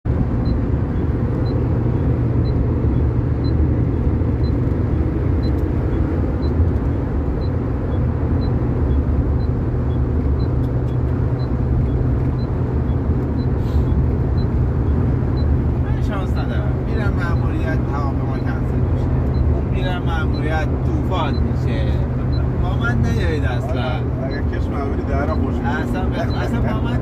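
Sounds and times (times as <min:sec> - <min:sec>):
car interior rumble: 0:00.0 - 0:27.0
faint two-pitch ticking: 0:00.4 - 0:27.0.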